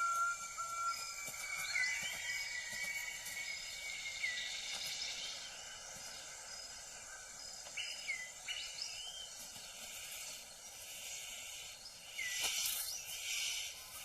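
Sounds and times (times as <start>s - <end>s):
bird whistles: 0.0s - 5.8s
high insect drone: 0.0s - 14.0s.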